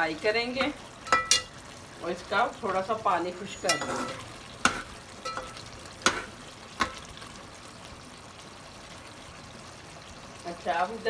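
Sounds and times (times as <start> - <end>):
curry sizzling in a metal pot: 0.0 - 11.0
metal spoon clinking on pot: 0.6 - 1.6, 3.5 - 6.2.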